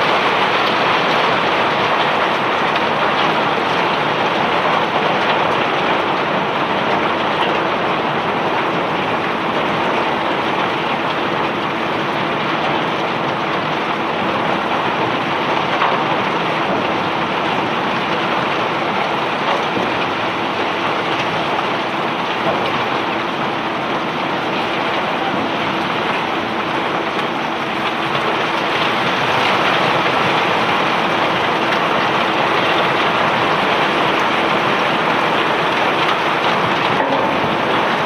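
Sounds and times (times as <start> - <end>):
faint machinery hum: 0.0 - 38.0
rock pouring off conveyor: 27.8 - 38.0.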